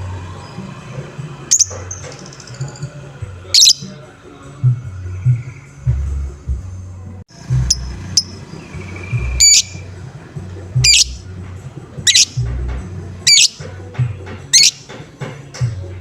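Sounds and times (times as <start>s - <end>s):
lovebird squawking: 1.5s - 2.4s, 3.5s - 4.0s, 7.7s - 9.9s, 10.8s - 11.2s, 12.0s - 12.6s, 13.2s - 13.7s, 14.5s - 14.9s.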